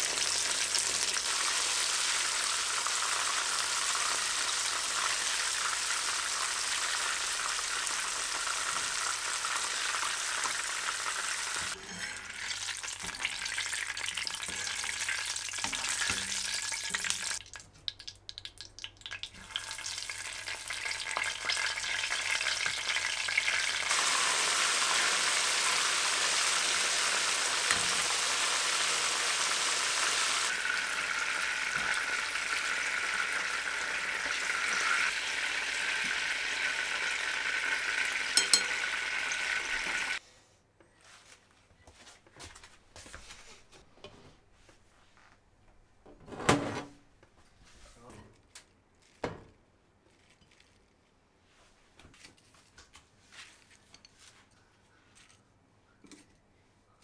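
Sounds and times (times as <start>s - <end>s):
food sizzling in a pan: 0.0s - 17.4s, 19.1s - 40.2s.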